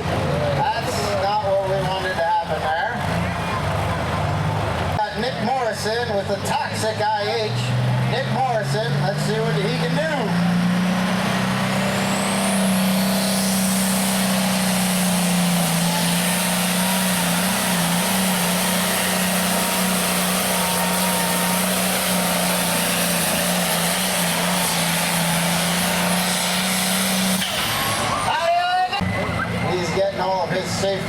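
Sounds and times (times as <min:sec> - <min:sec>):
diesel tractor engine under load: 0:00.0 - 0:31.0.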